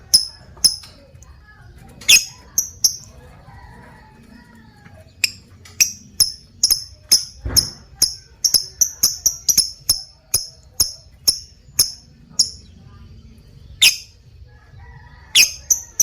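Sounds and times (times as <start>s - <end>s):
lovebird chirping: 0.0s - 1.0s, 2.0s - 3.1s, 5.2s - 14.2s, 15.3s - 16.0s
low thump: 7.4s - 8.0s.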